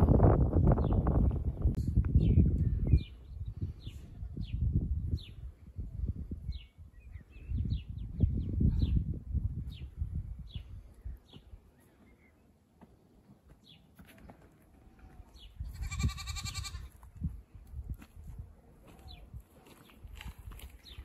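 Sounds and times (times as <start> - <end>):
goat bleating: 15.7 - 17.0.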